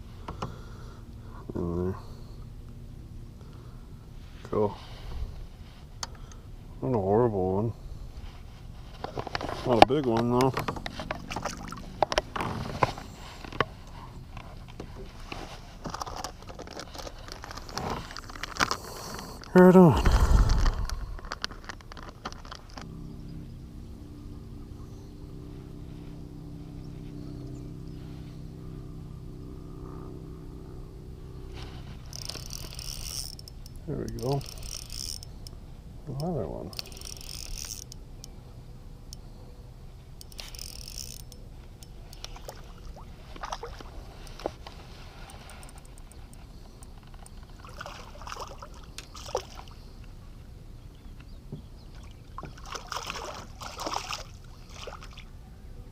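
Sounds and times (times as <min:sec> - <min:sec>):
boat motor hum: 0:00.0 - 0:55.9
low steady rumble: 0:00.0 - 0:55.9
water sloshing and dripping: 0:11.1 - 0:11.9, 0:42.2 - 0:44.5, 0:47.5 - 0:49.8, 0:51.9 - 0:55.3.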